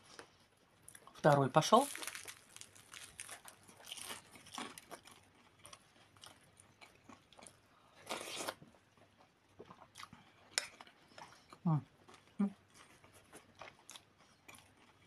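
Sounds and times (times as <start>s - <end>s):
crunching crisp flatbread: 1.7s - 11.0s.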